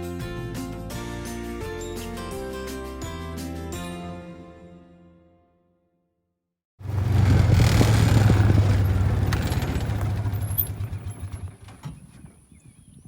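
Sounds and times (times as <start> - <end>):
vehicle engine humming with rattle: 6.8 - 12.9.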